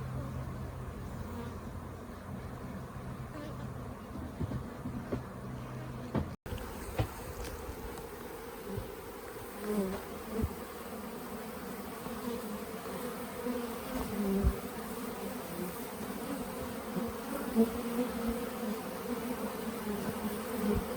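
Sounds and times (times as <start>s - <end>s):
honeybees buzzing: 0.0s - 20.9s
soft bumps: 3.4s - 7.7s.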